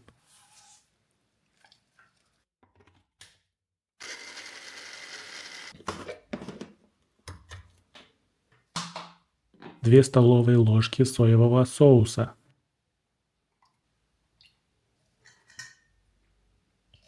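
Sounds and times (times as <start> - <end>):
food chopper whirring: 4.0 - 5.8.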